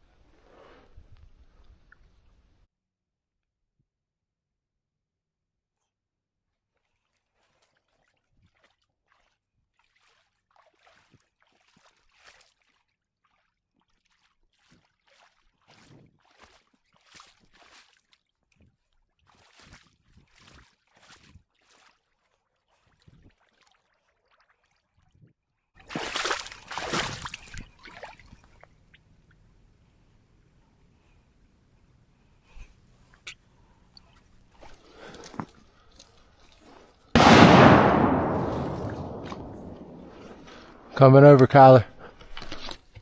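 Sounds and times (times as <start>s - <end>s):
footsteps sloshing through water: 6.6s - 29.6s, 32.6s - 37.1s, 38.3s - 41.0s, 41.9s - 43.0s
loud splashing: 25.8s - 28.6s, 37.2s - 40.9s.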